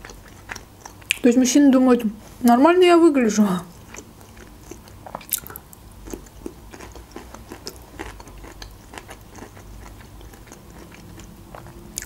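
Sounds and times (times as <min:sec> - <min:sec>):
person biting and chewing food: 0:03.7 - 0:12.0.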